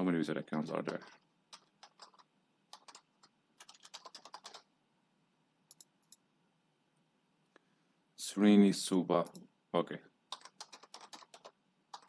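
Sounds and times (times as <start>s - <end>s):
typing on a computer keyboard: 0.5s - 4.7s, 10.3s - 12.0s.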